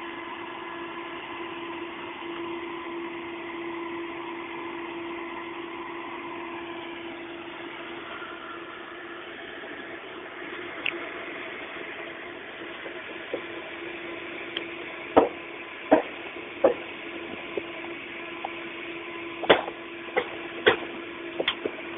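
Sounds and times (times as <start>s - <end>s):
machine humming: 0.0s - 21.9s
sharp metal knocks and clanks: 15.2s - 16.8s, 19.4s - 21.8s.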